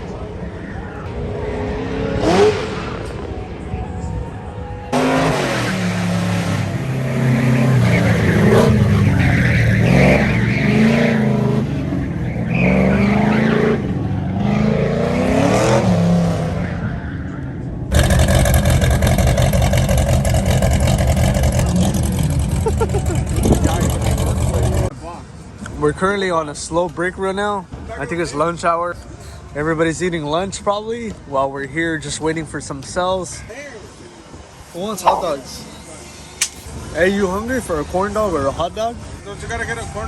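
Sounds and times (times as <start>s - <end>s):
car engine revving: 1.2s - 3.3s, 4.9s - 16.6s, 17.9s - 24.9s
steady loud engine noise: 17.9s - 24.9s.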